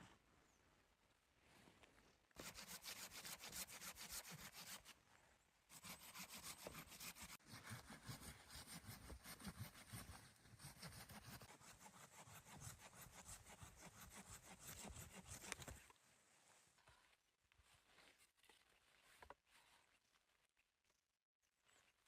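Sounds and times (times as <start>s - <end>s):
hand saw cutting wood: 2.4s - 4.9s, 5.7s - 15.8s.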